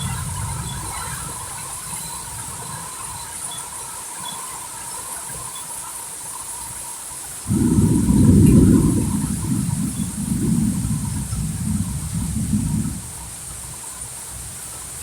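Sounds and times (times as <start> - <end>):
low rumble of wind: 0.0 - 3.4, 7.5 - 15.0
heavy rain hissing: 0.0 - 15.0.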